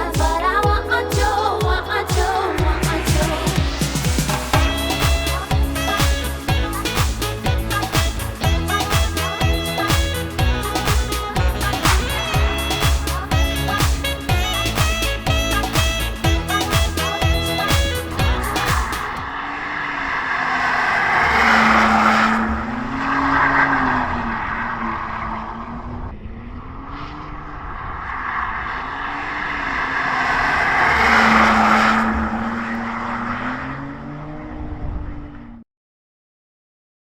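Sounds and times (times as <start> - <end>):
car engine and exhaust: 18.2 - 35.6.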